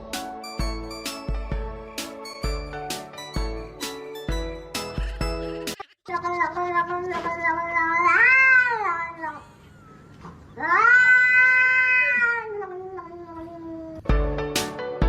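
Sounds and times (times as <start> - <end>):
cat yowling: 7.6 - 14.0.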